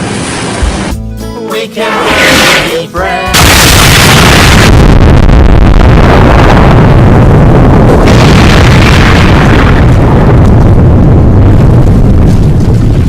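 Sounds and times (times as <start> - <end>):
loud rumbling explosions: 3.3 - 13.0.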